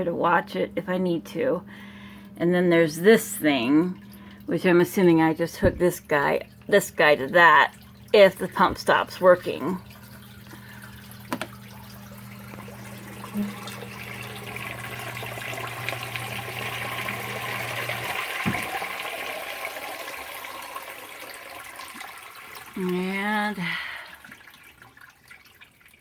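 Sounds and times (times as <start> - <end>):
sump pump motor hum: 0.0 - 26.0
pump knock: 5.6 - 5.9, 10.5 - 11.8, 12.4 - 21.3.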